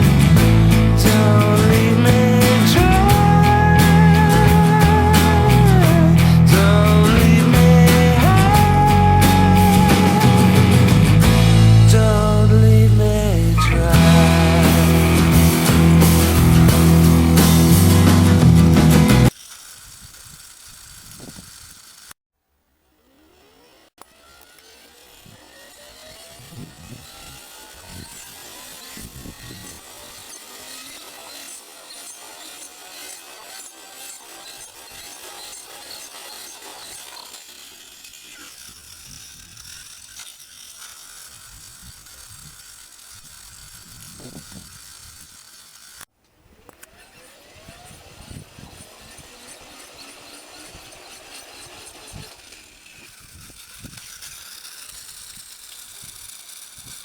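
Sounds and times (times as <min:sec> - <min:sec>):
toy launcher whirring: 0:00.0 - 0:22.2, 0:22.8 - 0:57.0
wind buffeting microphone: 0:47.6 - 0:49.3.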